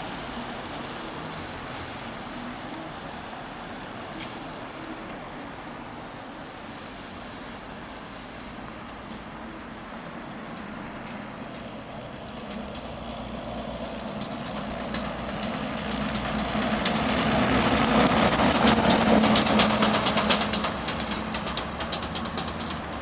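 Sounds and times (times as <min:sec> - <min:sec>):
heavy vehicle engine approaching: 0:00.0 - 0:04.8, 0:05.5 - 0:23.0
rapid high clicking: 0:10.5 - 0:23.0.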